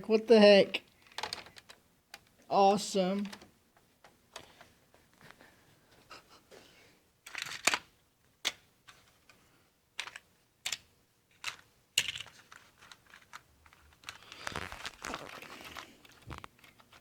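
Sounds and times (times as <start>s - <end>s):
rustling: 12.2s - 17.0s.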